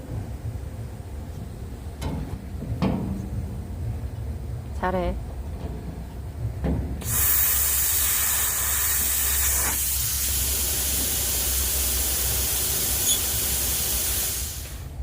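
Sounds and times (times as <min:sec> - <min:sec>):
pressurized nozzle spraying hiss: 0:07.0 - 0:15.0.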